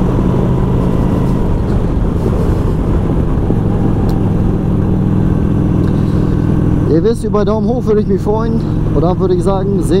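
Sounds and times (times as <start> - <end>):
motorcycle engine cruising: 0.0 - 10.0
wind rushing over microphone: 0.0 - 10.0.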